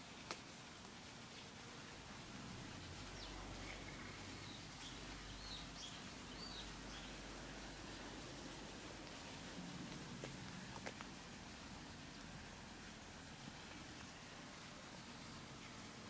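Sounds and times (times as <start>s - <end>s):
low steady rumble: 1.2s - 16.0s
bird chirps: 3.2s - 7.2s.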